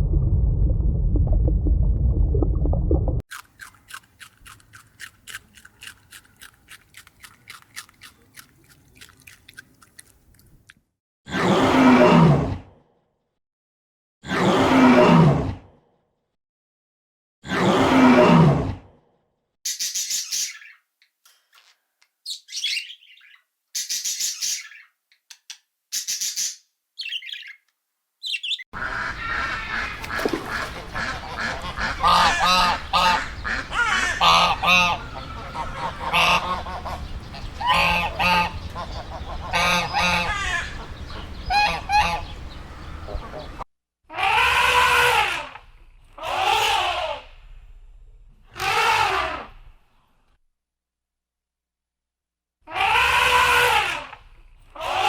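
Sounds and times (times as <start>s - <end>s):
birds honking: 28.8s - 43.6s
loud animal call: 31.0s - 45.6s, 46.2s - 47.3s, 48.6s - 49.6s, 52.7s - 54.2s, 54.8s - 55.0s.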